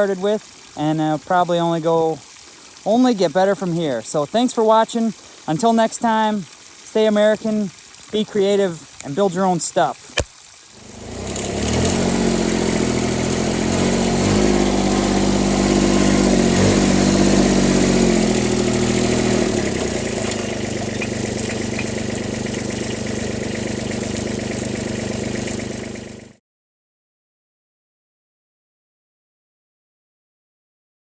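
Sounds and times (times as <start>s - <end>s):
tractor diesel engine running: 10.8s - 26.4s.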